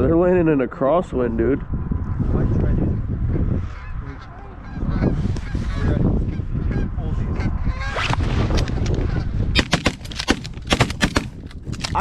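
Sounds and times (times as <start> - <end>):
geese honking: 3.7 - 8.0.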